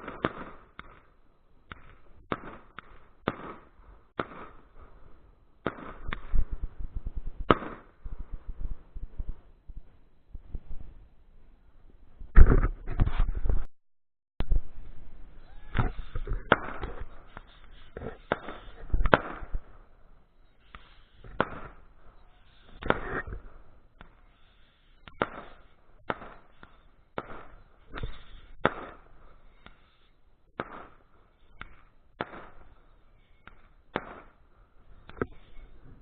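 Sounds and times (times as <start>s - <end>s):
fireworks crackle: 0.0s - 5.0s, 15.8s - 36.0s
fireworks bangs and pops: 0.0s - 10.8s, 12.2s - 13.7s, 15.6s - 36.0s.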